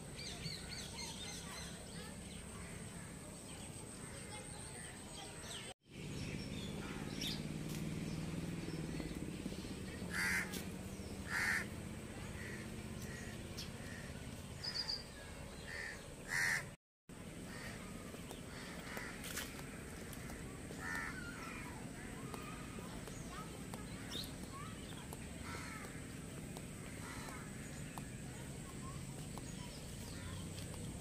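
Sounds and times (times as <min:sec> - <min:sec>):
birds calling: 0:00.0 - 0:31.0.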